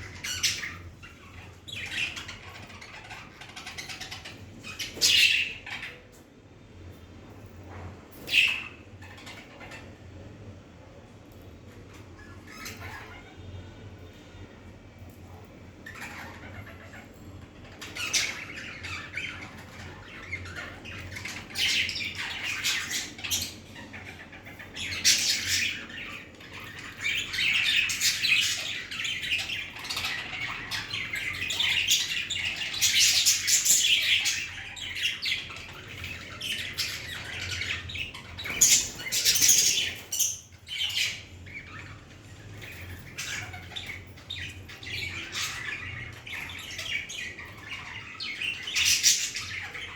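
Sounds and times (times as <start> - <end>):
budgerigars chattering and squawking: 0.0 - 6.1, 8.2 - 10.1, 11.6 - 13.6, 15.7 - 49.9.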